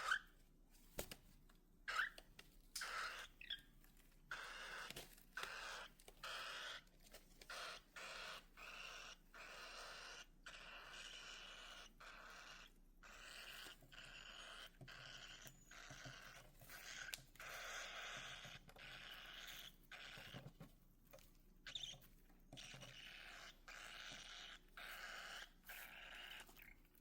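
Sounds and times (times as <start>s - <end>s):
baby cockatiels hissing calls: 0.0s - 0.3s, 1.9s - 2.2s, 2.8s - 3.6s, 4.3s - 6.8s, 7.5s - 20.4s, 22.6s - 26.7s.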